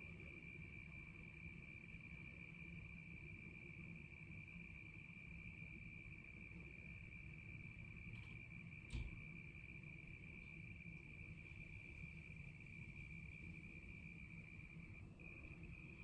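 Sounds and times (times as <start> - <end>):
cricket trilling: 0.0 - 16.0.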